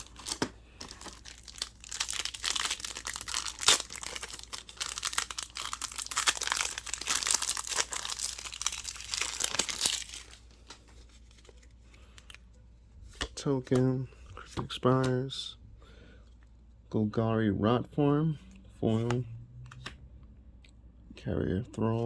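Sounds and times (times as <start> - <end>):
foil wrapper tearing and crinkling: 0.0 - 10.8.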